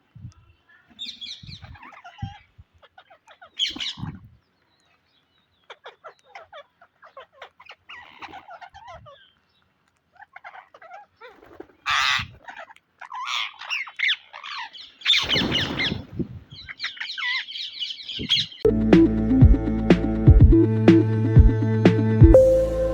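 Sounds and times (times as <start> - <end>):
parakeets chirping and squawking: 1.0 - 4.2, 5.6 - 9.4, 10.1 - 16.0, 16.6 - 18.7.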